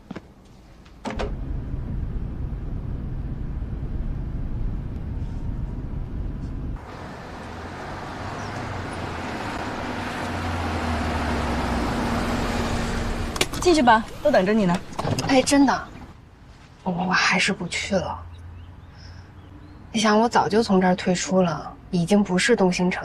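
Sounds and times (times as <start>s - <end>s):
car engine and road rumble: 1.0s - 16.8s
rush of road noise: 1.2s - 16.8s.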